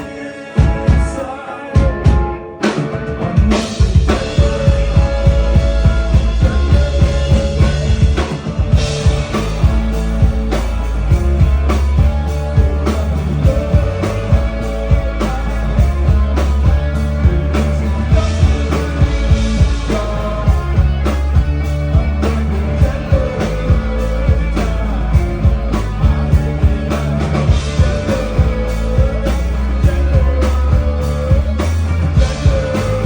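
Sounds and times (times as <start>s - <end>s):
drum kit beat: 0.0s - 33.0s
rock band playing: 0.0s - 33.0s.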